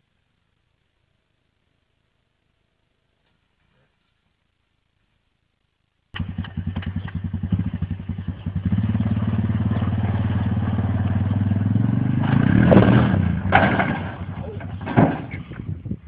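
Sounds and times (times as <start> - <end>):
motorcycle engine throbbing: 6.2 - 16.0.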